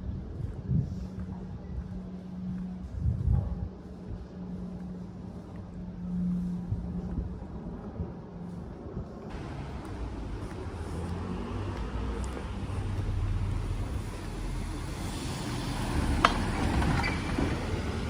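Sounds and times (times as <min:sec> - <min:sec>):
passing cars rumbling: 0:09.3 - 0:18.0.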